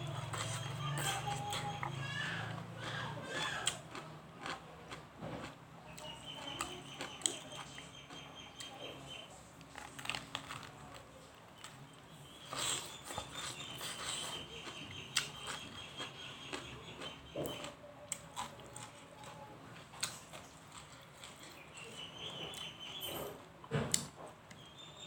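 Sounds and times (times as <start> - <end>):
chewing with wet mouth clicks: 12.5 - 19.4, 20.0 - 21.9.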